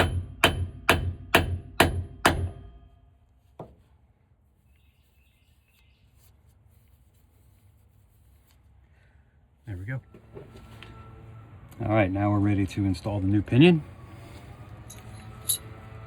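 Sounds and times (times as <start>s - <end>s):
hammer striking metal: 0.0s - 2.8s.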